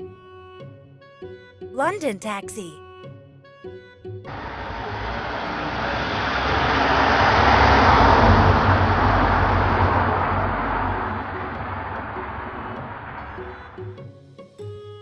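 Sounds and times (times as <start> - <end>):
car driving past: 4.3 - 13.4.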